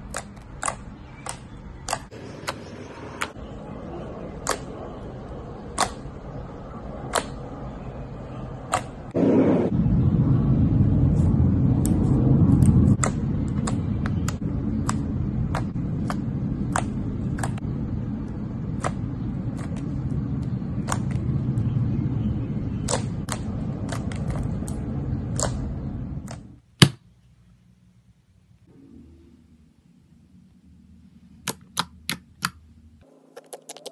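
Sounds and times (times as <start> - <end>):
clicks and pops of air pockets: 5.8 - 6.1.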